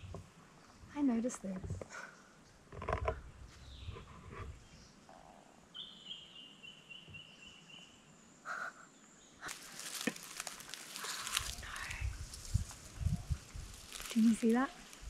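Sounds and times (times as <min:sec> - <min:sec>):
dry rustling and crackling: 0:09.4 - 0:15.0.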